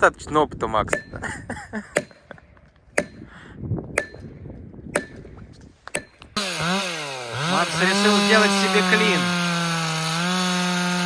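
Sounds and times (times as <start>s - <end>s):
hammer striking wedge: 0.9s - 1.2s, 2.0s - 2.4s, 3.0s - 3.3s, 3.9s - 4.3s, 4.9s - 8.8s
chainsaw running and revving: 6.4s - 11.0s.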